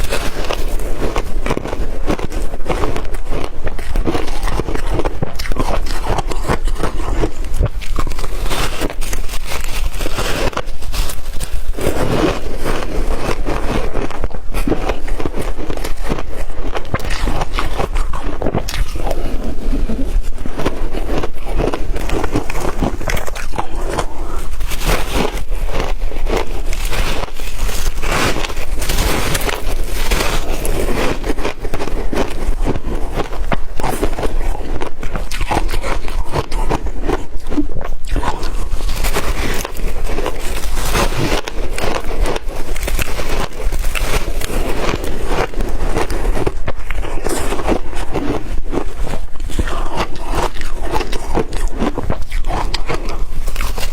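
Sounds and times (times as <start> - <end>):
chewing wet ice crunches: 0.0 - 53.9.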